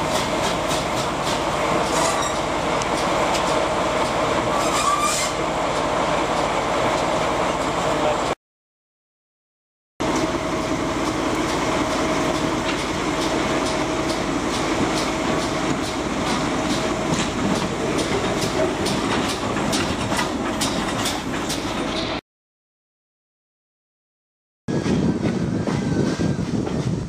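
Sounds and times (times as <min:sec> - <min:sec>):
wheels clicking over rail joints: 0:00.0 - 0:07.7, 0:11.0 - 0:22.2
locomotive rumbling: 0:00.0 - 0:08.4, 0:10.0 - 0:22.2, 0:24.7 - 0:27.0.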